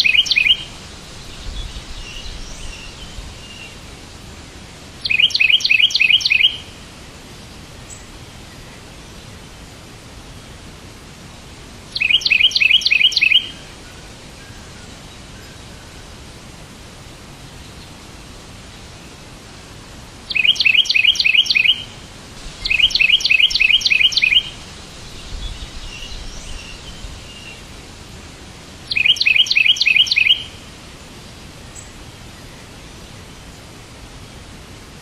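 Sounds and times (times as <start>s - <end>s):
fainter bird call: 0.0s - 0.7s, 5.0s - 6.7s, 12.0s - 15.7s, 20.3s - 22.0s, 22.6s - 24.6s, 28.9s - 30.6s
bird chirping: 0.0s - 3.8s, 5.0s - 6.7s, 11.9s - 13.6s, 20.3s - 22.0s, 22.6s - 27.7s, 28.9s - 30.6s
steady background hiss: 0.0s - 35.0s.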